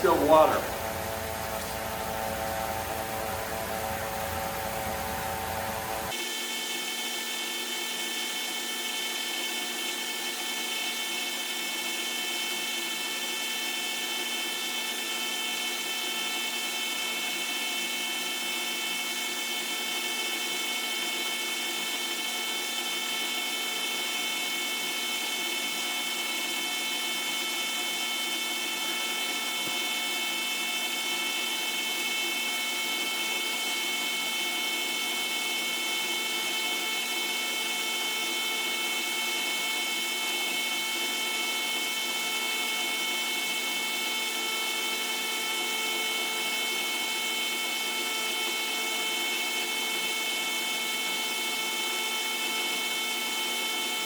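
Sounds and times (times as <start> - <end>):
electric pump whining: 0.0 - 6.2.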